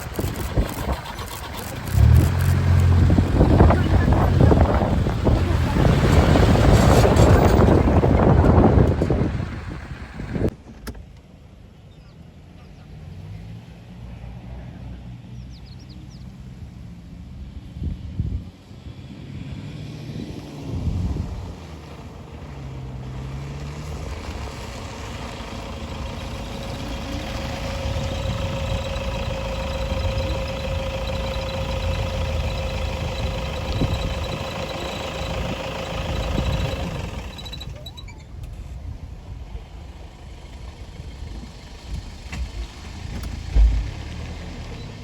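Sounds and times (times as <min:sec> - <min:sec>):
vehicle engine and road rumble: 0:00.0 - 0:45.0
steady whine: 0:25.5 - 0:38.1.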